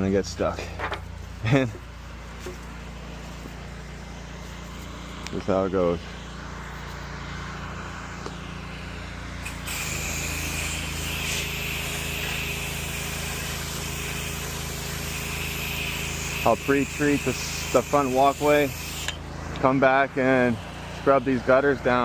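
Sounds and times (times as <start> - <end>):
pressure washer engine hum: 0.0 - 22.0
water spray hissing: 9.4 - 19.1.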